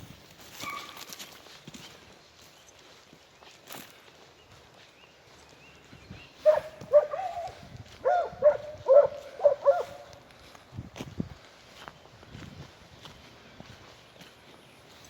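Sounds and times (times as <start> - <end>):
hound barking: 6.4 - 10.2.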